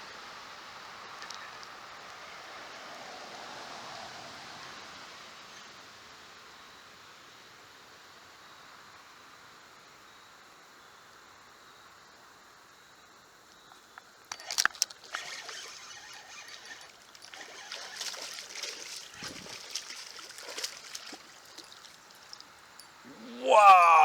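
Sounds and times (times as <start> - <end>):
fish splashing in water: 15.0 - 22.4.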